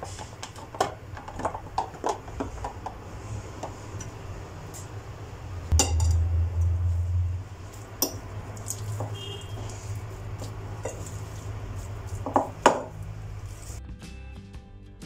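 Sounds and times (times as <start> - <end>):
hard objects clinking and knocking: 0.0 - 3.0, 5.7 - 6.3, 7.9 - 13.3
steady low hum: 2.7 - 13.8.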